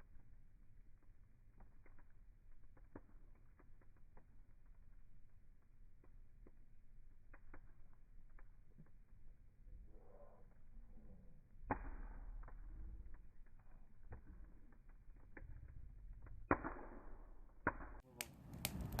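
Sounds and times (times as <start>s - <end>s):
campfire crackling and popping: 0.0s - 19.0s
rushing bursts of flame: 18.2s - 19.0s.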